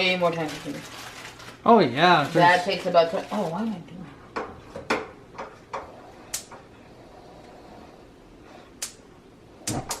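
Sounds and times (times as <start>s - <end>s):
kitchen clicks and knocks: 4.4s - 5.9s.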